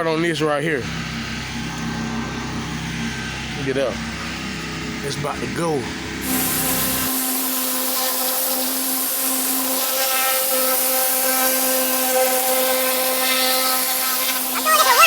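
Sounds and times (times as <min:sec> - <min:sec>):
pressure washer machine hum: 0:06.2 - 0:15.0
water jet hissing: 0:06.2 - 0:15.0.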